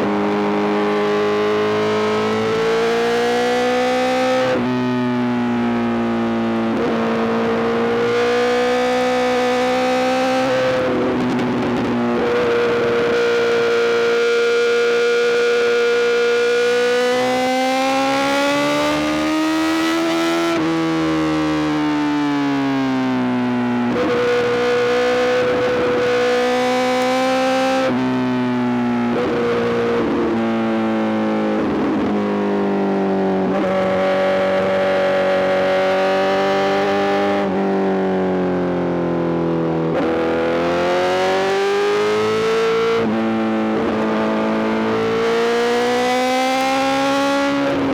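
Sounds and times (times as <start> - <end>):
motorcycle engine revving: 33.3 - 37.6.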